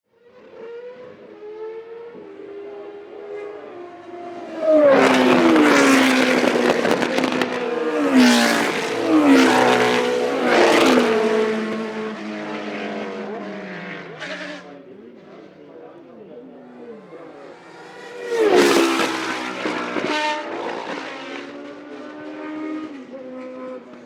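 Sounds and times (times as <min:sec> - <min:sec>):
racing cars passing at speed: 0:00.2 - 0:15.7, 0:16.4 - 0:24.0.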